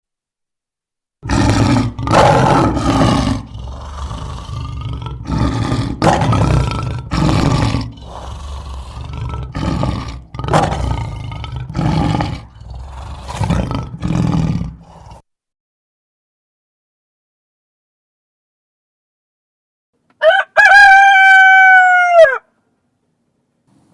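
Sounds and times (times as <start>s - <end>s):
lion roaring and grunting: 1.2s - 15.2s.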